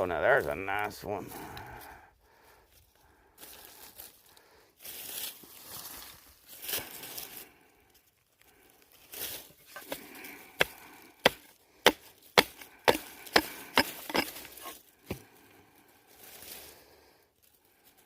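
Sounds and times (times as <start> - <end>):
digging tool chopping into soil: 9.7 - 15.3.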